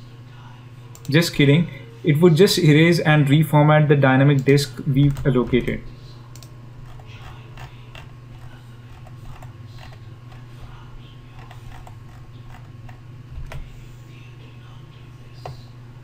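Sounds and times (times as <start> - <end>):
low electrical hum: 0.0 - 16.0
mouse and keyboard clicking: 6.3 - 10.0, 11.4 - 13.6.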